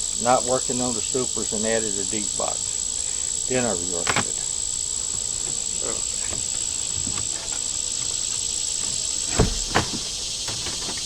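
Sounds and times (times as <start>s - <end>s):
hiss: 0.0s - 11.0s
insects trilling: 0.0s - 11.0s
sharp knocks: 9.3s - 11.0s.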